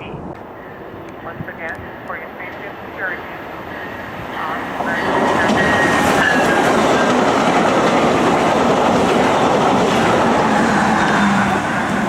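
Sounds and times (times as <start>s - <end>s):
passenger train passing at speed: 0.0s - 12.0s
wheels clickety-clack on rails: 4.7s - 12.0s.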